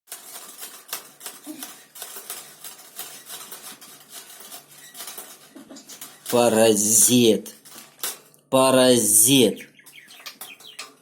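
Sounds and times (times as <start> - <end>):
parrot rattling metal cage: 0.1 - 6.5, 7.5 - 8.4.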